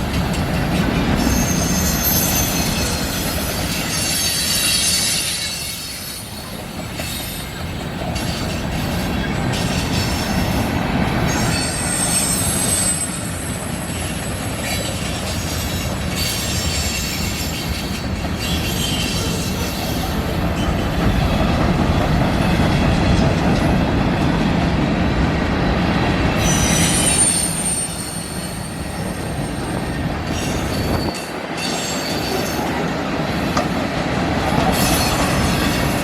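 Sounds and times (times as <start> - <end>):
freight cars rumbling and clattering: 0.0 - 27.1
high-pitched wheel squeal: 1.3 - 3.0, 26.4 - 32.4.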